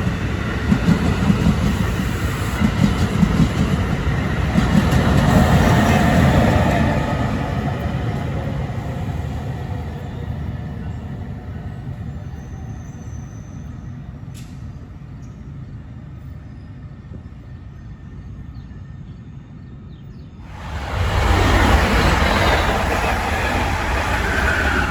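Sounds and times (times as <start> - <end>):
train wheels rumbling on rail: 0.0 - 16.0, 20.4 - 24.9.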